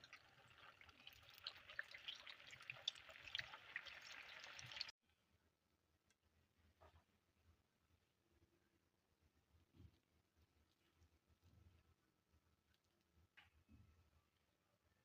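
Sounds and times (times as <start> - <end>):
food deep-frying in oil: 0.0 - 4.9.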